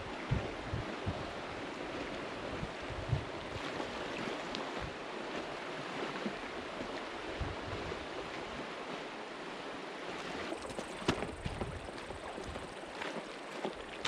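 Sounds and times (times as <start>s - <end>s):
rushing river water: 0.0s - 14.0s.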